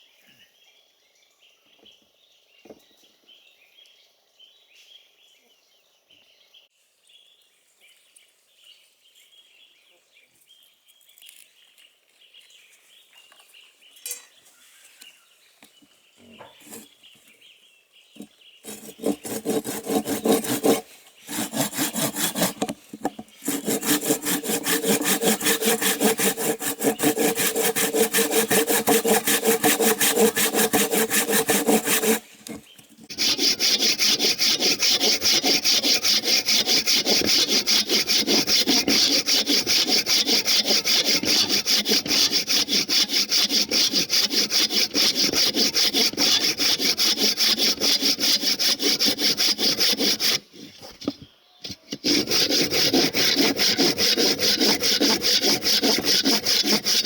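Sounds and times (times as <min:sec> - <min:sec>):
saw cutting through wood: 0:16.6 - 0:17.0, 0:18.2 - 0:50.8, 0:51.9 - 0:57.0.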